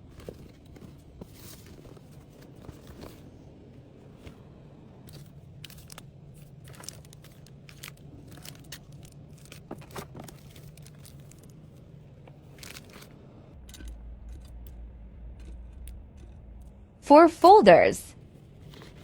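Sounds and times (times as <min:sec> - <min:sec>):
low hum: 0:00.0 - 0:19.0
plastic packaging crinkling: 0:05.1 - 0:11.8, 0:12.4 - 0:13.2.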